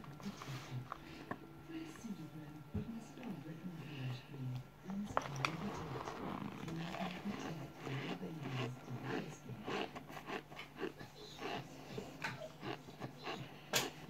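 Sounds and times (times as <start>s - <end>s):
person chewing with mouth clicks: 6.1s - 14.0s.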